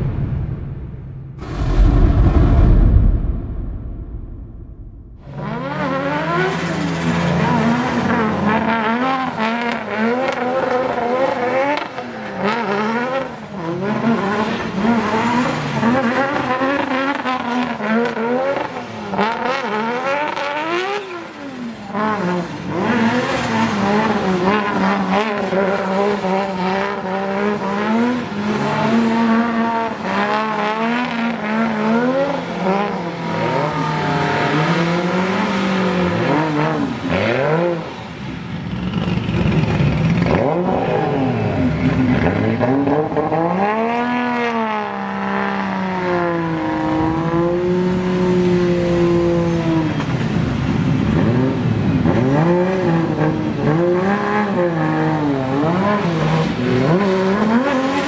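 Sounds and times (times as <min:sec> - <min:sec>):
car engine revving: 0:01.1 - 0:38.1.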